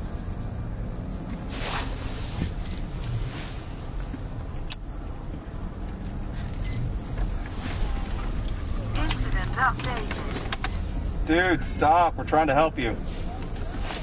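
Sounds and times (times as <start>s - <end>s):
car engine rumble: 0.0s - 14.0s
road and wind hiss: 0.0s - 14.0s
short high electronic beeps: 2.6s - 2.8s, 6.6s - 6.8s.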